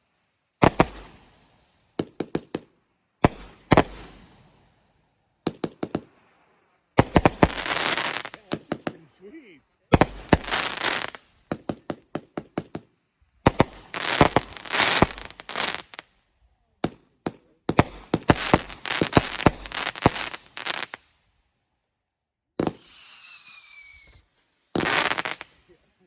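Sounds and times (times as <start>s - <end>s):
rapid firework cracking: 0.4s - 4.6s, 5.4s - 6.4s, 7.0s - 9.1s, 9.9s - 16.0s, 16.8s - 21.0s, 22.6s - 25.6s
firework bangs: 0.6s - 4.8s, 5.4s - 6.4s, 7.0s - 9.2s, 9.9s - 16.0s, 16.8s - 21.0s, 22.6s - 25.7s
firework whistle sliding down: 22.7s - 24.6s.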